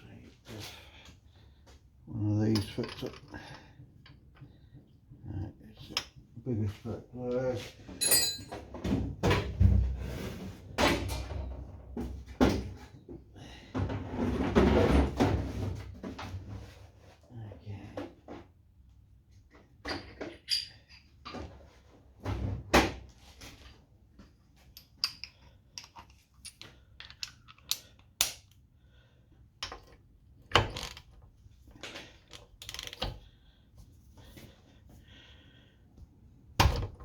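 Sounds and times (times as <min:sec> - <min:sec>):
hand tools clinking on engine: 0:08.0 - 0:08.6.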